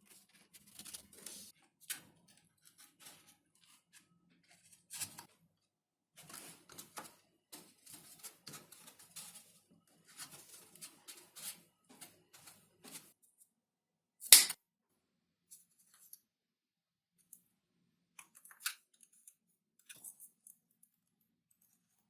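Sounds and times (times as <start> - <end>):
loud sharp snap: 14.3 - 14.6.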